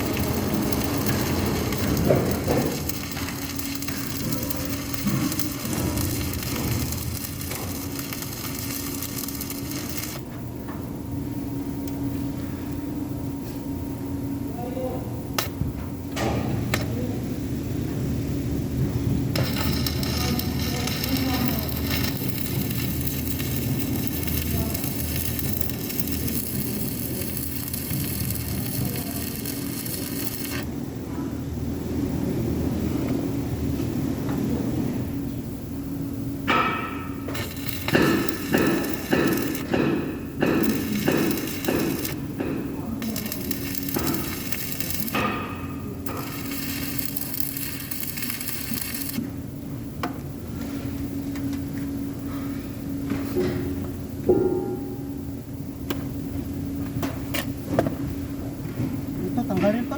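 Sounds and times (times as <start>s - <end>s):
welding arc crackling and hissing: 0.0s - 10.3s, 16.4s - 30.7s, 35.0s - 49.4s, 59.0s - 59.9s
steady low hum: 0.0s - 59.9s.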